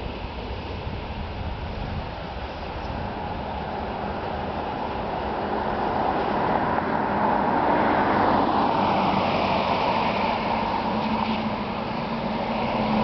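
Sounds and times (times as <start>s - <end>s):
electric train rolling: 0.0s - 13.0s
train whine: 0.0s - 13.0s.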